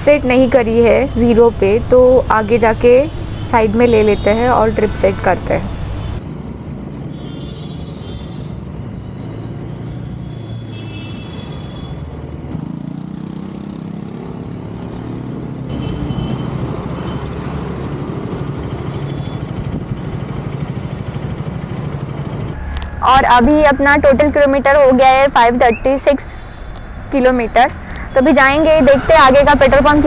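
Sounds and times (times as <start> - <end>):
motorcycle engine running: 12.5 - 16.9.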